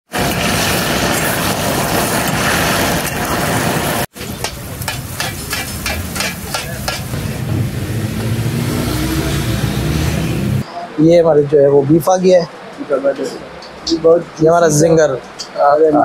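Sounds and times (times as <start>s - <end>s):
food frying sizzle: 0.1s - 7.2s.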